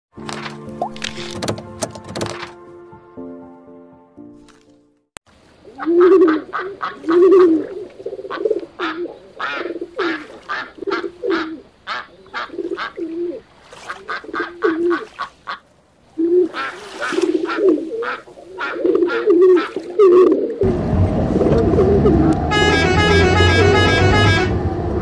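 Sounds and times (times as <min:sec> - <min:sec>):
pigeons cooing: 0:05.7 - 0:15.2, 0:16.2 - 0:20.6
ducks quacking: 0:05.8 - 0:07.6, 0:08.2 - 0:13.0, 0:13.8 - 0:15.6, 0:16.5 - 0:19.9.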